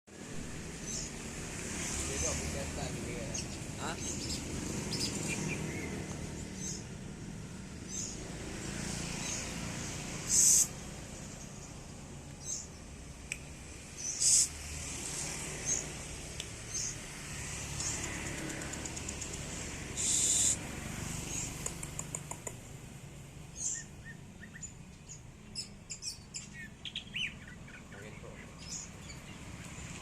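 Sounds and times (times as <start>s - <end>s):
songbird chirping: 0.1s - 30.0s
harsh bird call bursts: 10.2s - 10.8s, 14.0s - 14.6s, 20.0s - 20.6s
quick ticking bird call: 21.5s - 22.6s.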